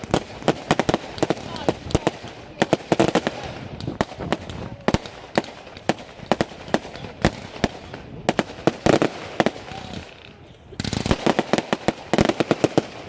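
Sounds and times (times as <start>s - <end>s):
faint crowd voices: 0.0s - 13.0s
fireworks bangs and cracks: 0.0s - 13.0s.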